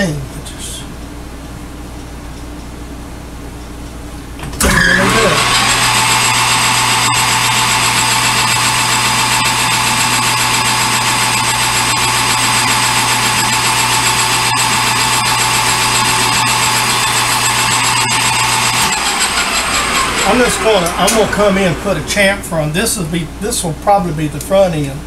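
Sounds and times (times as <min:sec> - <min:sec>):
metal lathe motor hum and whine: 0:04.6 - 0:22.7.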